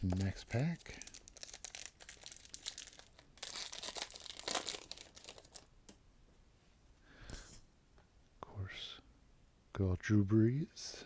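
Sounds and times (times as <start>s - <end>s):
wrapper being torn and crinkled: 0.0s - 5.7s.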